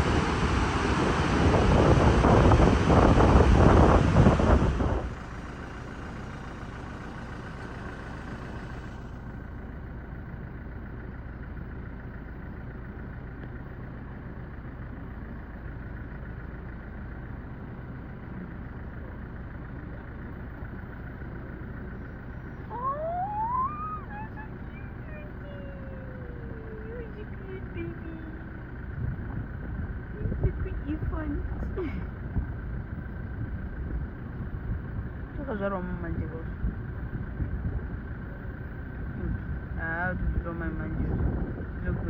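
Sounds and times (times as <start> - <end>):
wind and water spray rushing: 0.0 - 5.2
low vehicle hum: 0.0 - 42.0
short rising chirps: 22.7 - 24.2.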